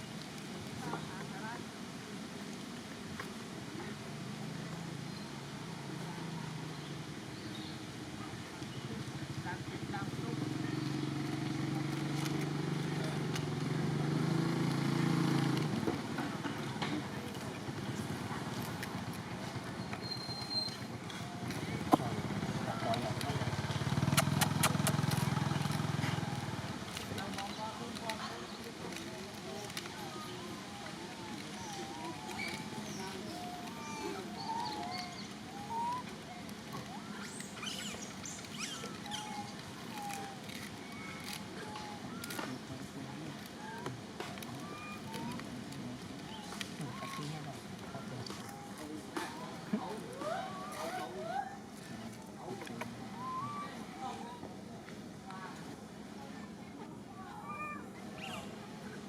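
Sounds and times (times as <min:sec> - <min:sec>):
vehicle engine humming: 0:08.8 - 0:50.4
high animal squeaks and chirps: 0:37.1 - 0:41.1.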